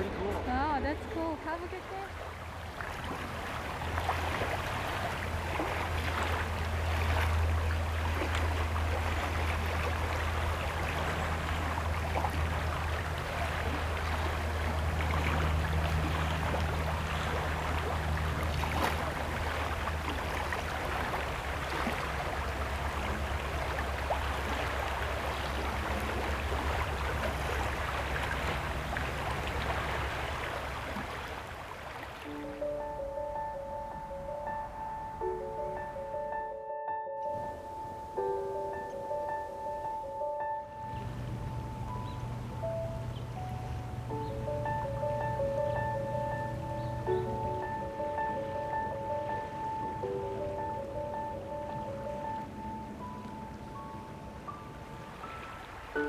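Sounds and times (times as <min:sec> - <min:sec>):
steady low hum: 0:00.0 - 0:31.5, 0:40.9 - 0:49.3
water running and trickling: 0:00.0 - 0:32.6.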